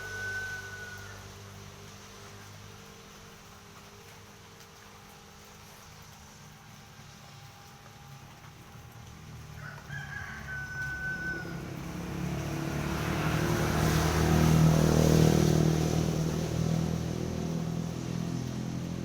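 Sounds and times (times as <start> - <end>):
rooster crowing: 0.0 - 1.3, 9.5 - 12.0
motor vehicle passing: 0.0 - 19.0.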